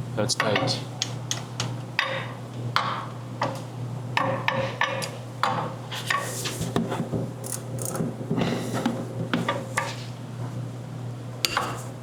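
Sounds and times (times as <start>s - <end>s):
steady low hum: 0.0s - 12.0s
wrench clicking and knocking: 7.4s - 8.0s.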